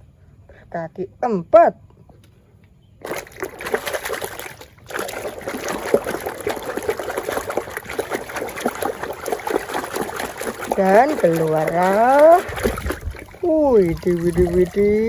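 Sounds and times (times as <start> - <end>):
water splashing over plastic toy: 3.0 - 15.0.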